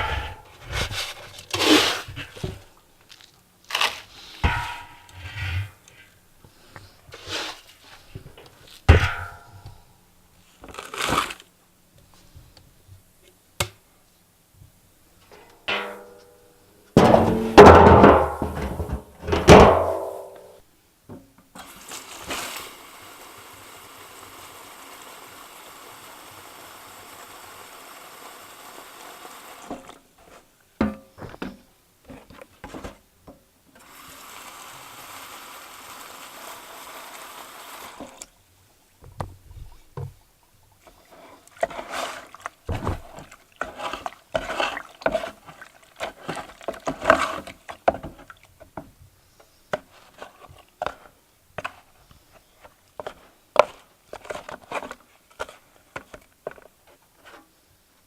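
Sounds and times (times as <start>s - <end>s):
knocks and clatter of handling: 17.0s - 20.5s.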